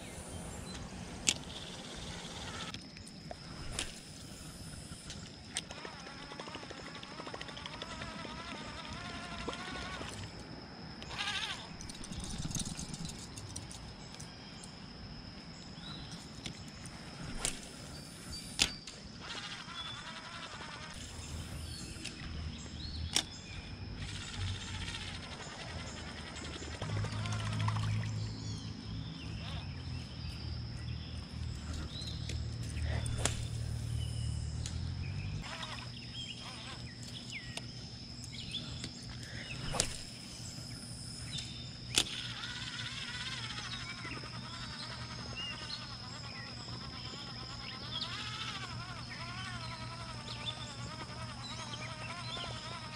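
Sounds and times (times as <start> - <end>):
steady high-pitched whine: 0.0 - 52.9
birds chirping: 25.4 - 42.1
fishing rod cast swish: 33.0 - 33.5, 39.6 - 40.1.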